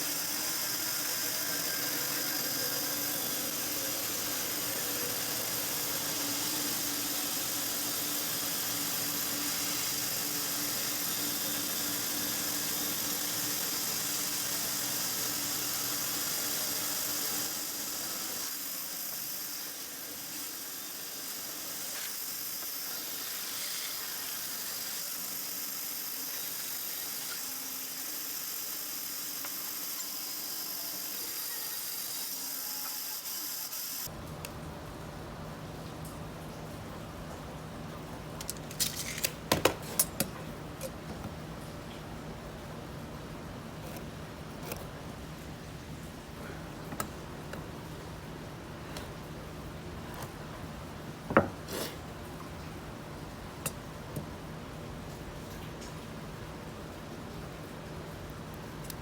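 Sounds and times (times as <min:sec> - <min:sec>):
woodworking power tool whirring: 0:00.0 - 0:34.1.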